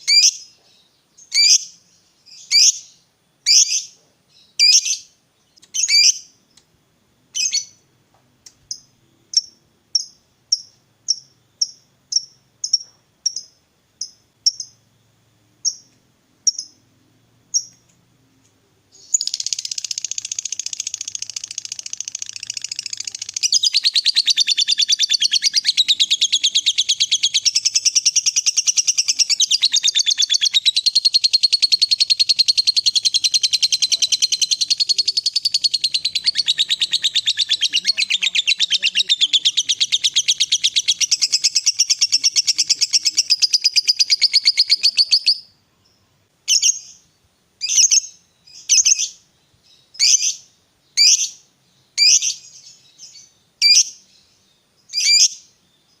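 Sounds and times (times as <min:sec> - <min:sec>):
lovebird chirping and trilling: 0:00.0 - 0:00.5, 0:01.2 - 0:06.3, 0:07.4 - 0:07.8, 0:08.6 - 0:14.8, 0:18.9 - 0:45.5, 0:46.5 - 0:47.0, 0:47.6 - 0:51.4, 0:52.0 - 0:55.5.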